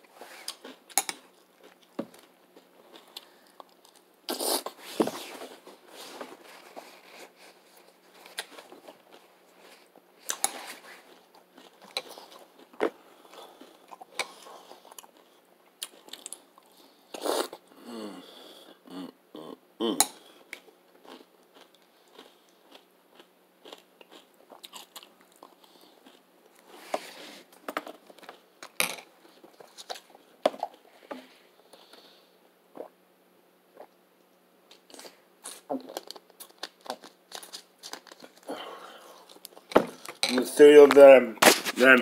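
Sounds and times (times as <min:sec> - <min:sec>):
crunchy cereal chewing: 0:06.1 - 0:17.6, 0:20.5 - 0:26.8, 0:34.7 - 0:40.3.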